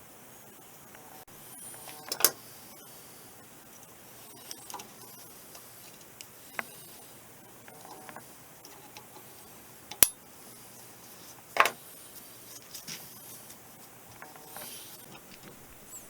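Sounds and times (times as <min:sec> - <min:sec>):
metal tool clinks and taps: 0:09.9 - 0:10.2.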